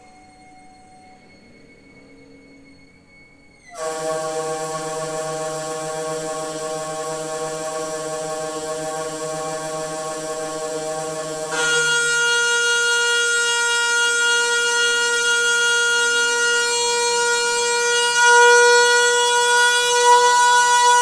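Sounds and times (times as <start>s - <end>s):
noisy water pipe high tone: 0.0s - 21.0s.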